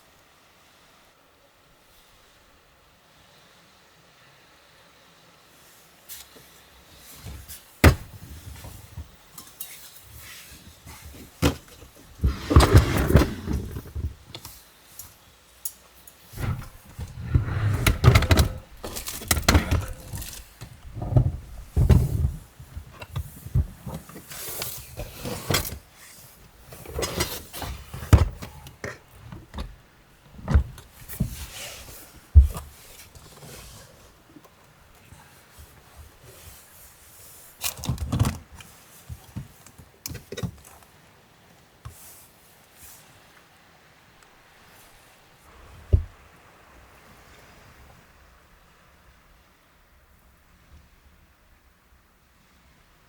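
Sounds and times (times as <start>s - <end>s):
rustling and clatter: 7.0s - 15.1s, 16.2s - 34.6s
sharp knocks and thunks: 7.8s - 8.4s, 16.4s - 23.0s, 32.4s - 32.8s, 45.9s - 46.2s.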